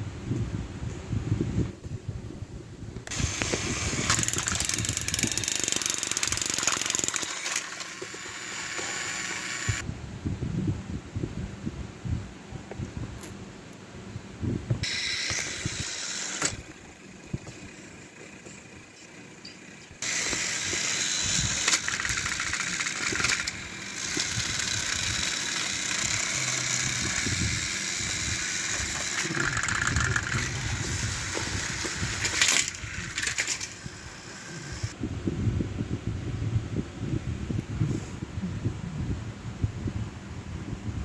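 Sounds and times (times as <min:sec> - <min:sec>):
toy train whirring with rattle: 0:03.0 - 0:09.9, 0:14.8 - 0:35.0.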